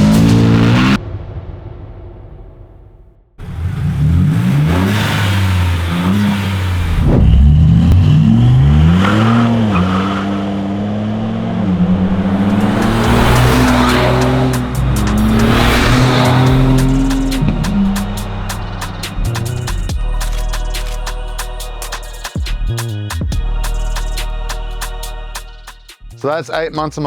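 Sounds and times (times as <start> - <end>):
car engine accelerating hard: 0.0 - 1.0, 3.4 - 21.3.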